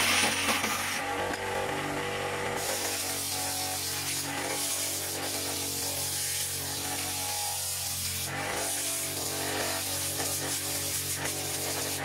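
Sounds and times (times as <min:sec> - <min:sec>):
sandpaper rubbing spinning wood: 0:02.6 - 0:12.0.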